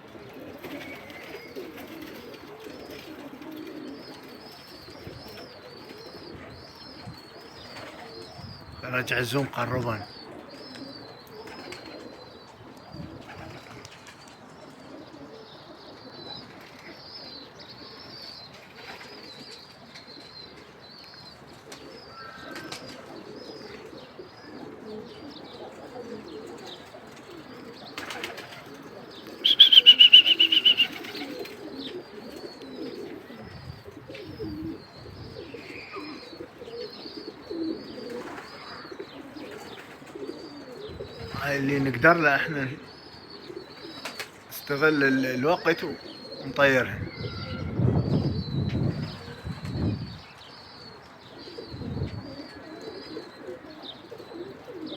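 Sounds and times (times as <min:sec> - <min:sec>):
pigeons cooing: 0:00.0 - 0:54.9
wing flaps: 0:28.0 - 0:31.8
high pulsing whistle-like call: 0:29.4 - 0:31.1
small high chirps: 0:29.4 - 0:31.3.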